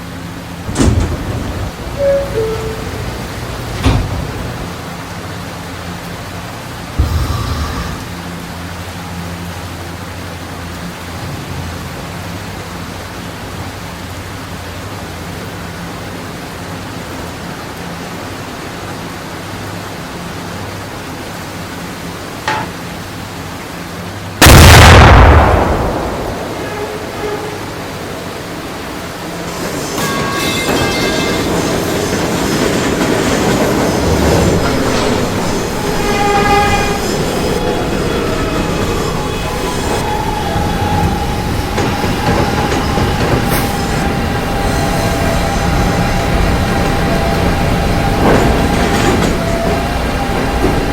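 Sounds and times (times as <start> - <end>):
wheels squealing on rails: 0.0 - 8.6, 26.3 - 50.9
subway train running: 0.0 - 50.9.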